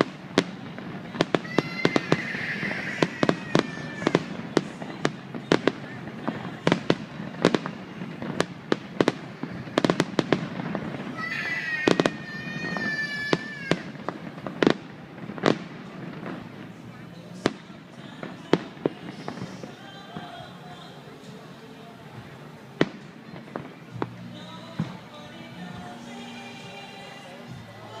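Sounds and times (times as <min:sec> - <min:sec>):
firework whistling tones: 0:01.0 - 0:06.8, 0:07.4 - 0:16.8.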